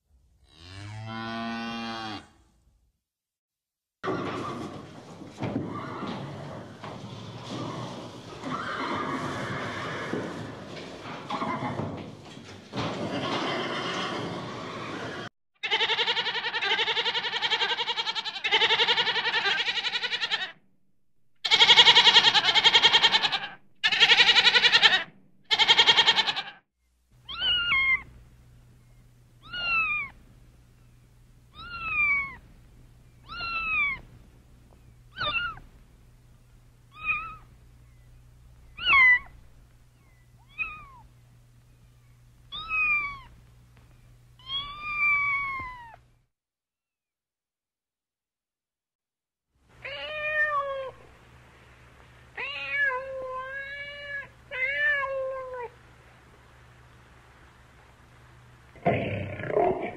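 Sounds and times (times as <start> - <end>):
goats bleating: 15.6 - 20.6, 21.4 - 26.6
low steady hum: 26.8 - 46.3, 49.6 - 59.9
cat meowing: 27.2 - 28.1, 29.4 - 30.2, 31.5 - 32.4, 33.2 - 34.0, 35.1 - 35.6, 36.9 - 37.4, 38.8 - 39.3, 40.4 - 41.1, 42.5 - 43.3, 44.4 - 46.0, 52.4 - 55.7.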